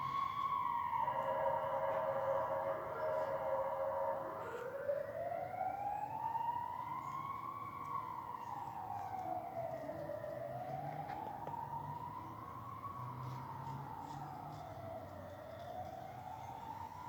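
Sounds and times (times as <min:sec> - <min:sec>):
police siren wailing: 0:00.0 - 0:17.0.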